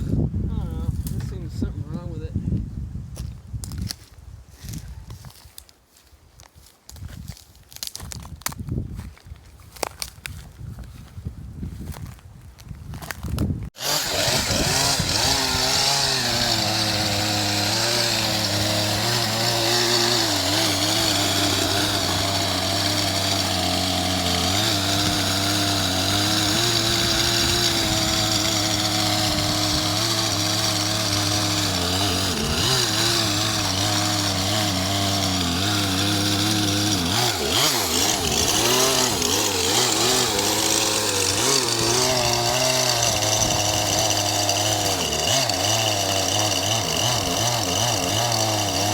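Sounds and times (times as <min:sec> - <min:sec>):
chainsaw running under load: 0:13.7 - 0:48.9.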